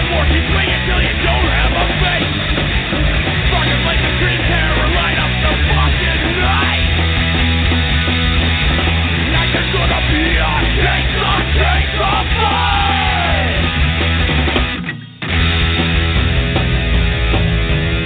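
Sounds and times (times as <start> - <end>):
punk rock song: 0.0 - 18.0
person yelling vocals: 9.4 - 13.6.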